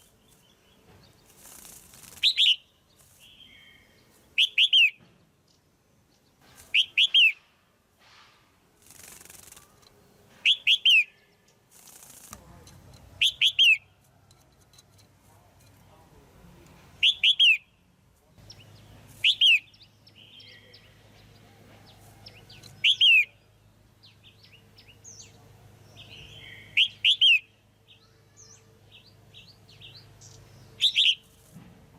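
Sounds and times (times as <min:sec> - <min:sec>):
soft bird chirps: 0:00.0 - 0:07.5, 0:08.8 - 0:16.0, 0:17.0 - 0:31.5
bird whistled calls: 0:17.0 - 0:17.6, 0:19.2 - 0:20.4, 0:22.8 - 0:23.4, 0:26.3 - 0:27.5, 0:30.8 - 0:31.2.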